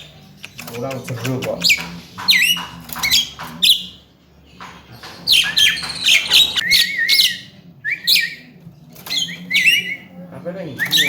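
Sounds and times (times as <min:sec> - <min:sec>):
bird squawking and whistling: 0:01.6 - 0:04.0, 0:05.3 - 0:11.0.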